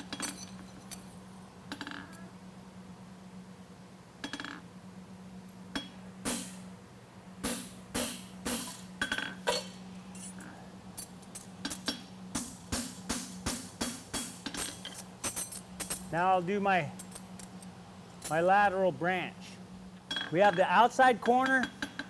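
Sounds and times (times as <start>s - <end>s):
hammer striking steel on anvil: 5.8s - 6.6s, 7.4s - 9.7s, 11.7s - 15.4s, 20.1s - 22.0s.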